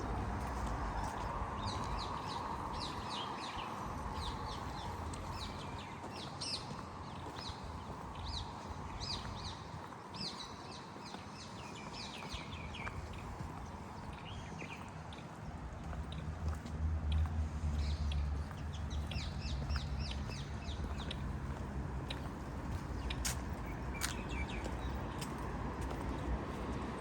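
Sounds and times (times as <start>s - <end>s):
distant city traffic hum: 0.0s - 27.0s
small birds chirping: 0.4s - 26.9s.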